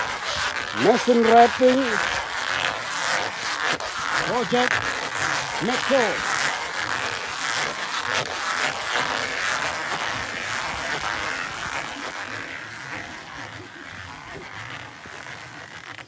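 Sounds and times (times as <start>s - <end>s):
tape unwinding with rasping buzz: 0.0s - 16.0s.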